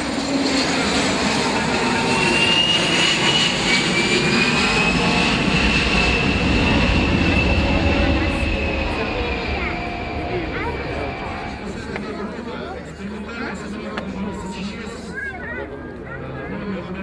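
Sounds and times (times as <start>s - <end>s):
high engine whine: 0.0s - 13.0s
aircraft engines running: 0.0s - 17.0s.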